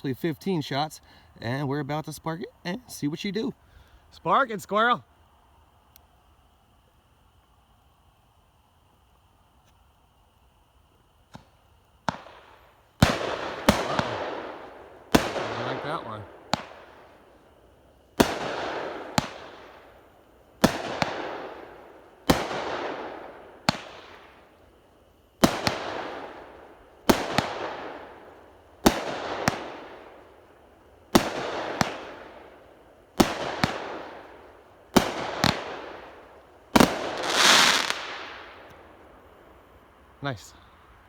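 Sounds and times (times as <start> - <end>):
firework crackling hiss: 2.7 - 41.0
firework hissing tail: 6.7 - 41.0
firework bangs: 11.3 - 24.6, 25.2 - 39.4.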